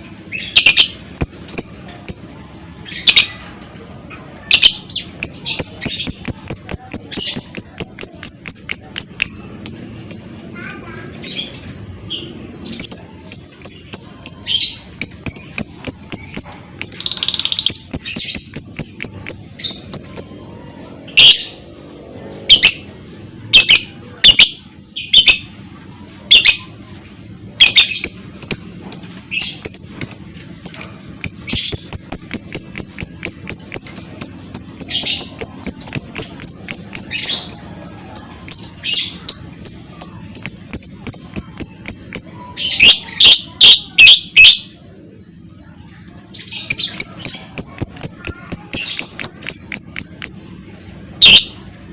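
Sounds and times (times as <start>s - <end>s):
lovebird chirping trill: 0.3s - 3.4s, 4.5s - 11.5s, 12.1s - 20.4s, 23.5s - 25.5s, 27.6s - 44.8s, 46.3s - 50.6s, 51.2s - 51.6s
sharp squeaky bird calls: 46.4s - 50.5s, 51.2s - 51.6s.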